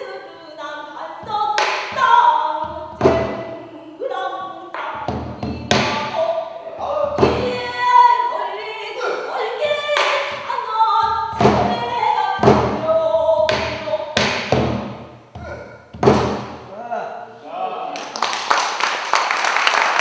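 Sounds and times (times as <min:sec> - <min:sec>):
barrel drum strokes: 0:01.2 - 0:03.6, 0:04.5 - 0:08.2, 0:09.6 - 0:16.7
solo voice singing: 0:02.0 - 0:14.2.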